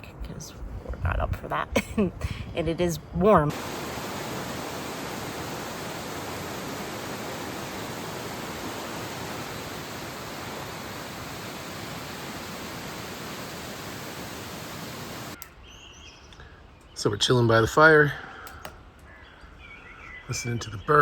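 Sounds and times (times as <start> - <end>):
fast-flowing water rushing: 3.5 - 15.4.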